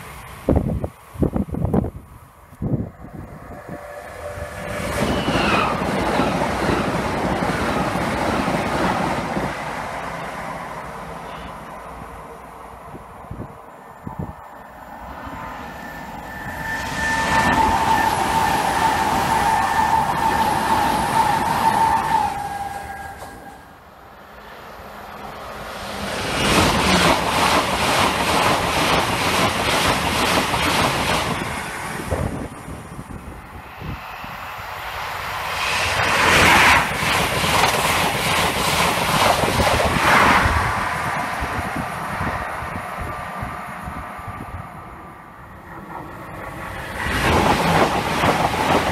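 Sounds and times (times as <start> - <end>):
train passing at speed: 0.0 - 48.9
high whine: 1.7 - 8.0, 32.0 - 37.7
wheels clattering on rails: 45.8 - 48.9.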